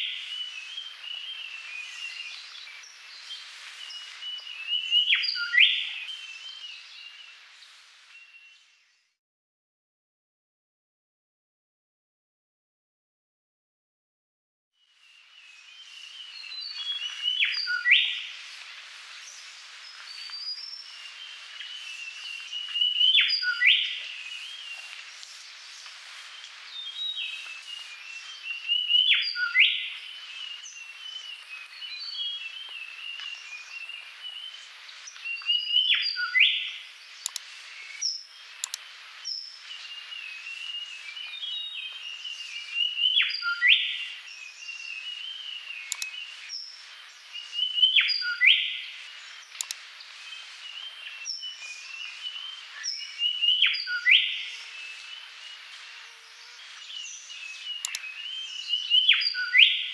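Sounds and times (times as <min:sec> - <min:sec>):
twittering bird chirps: 0:26.3 - 0:59.9.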